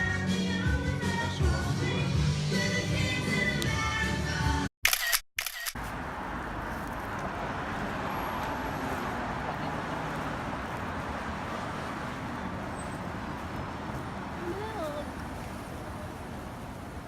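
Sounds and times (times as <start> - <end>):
city street traffic hum: 5.4 - 17.0.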